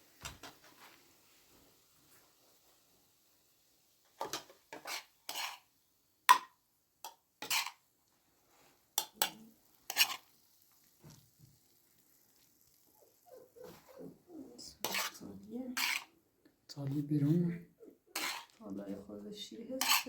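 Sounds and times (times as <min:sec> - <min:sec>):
utensils clinking against cookware: 0:04.2 - 0:05.6, 0:06.3 - 0:07.8, 0:09.0 - 0:10.3, 0:14.8 - 0:15.2, 0:15.8 - 0:16.2, 0:18.1 - 0:18.6, 0:19.7 - 0:20.0.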